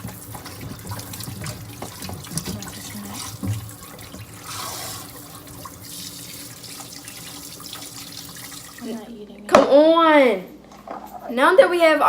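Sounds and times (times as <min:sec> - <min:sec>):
tap running into sink: 0:00.0 - 0:08.8.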